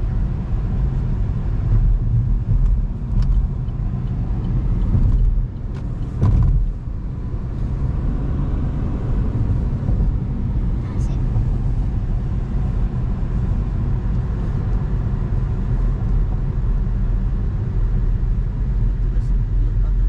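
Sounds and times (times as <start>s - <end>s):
road and engine rumble in car: 0.0s - 20.0s
thump: 6.2s - 6.7s.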